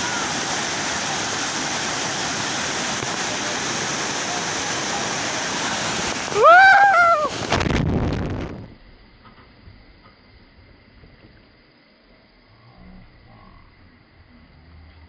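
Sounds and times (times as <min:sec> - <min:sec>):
waterfall rushing: 0:00.0 - 0:07.5.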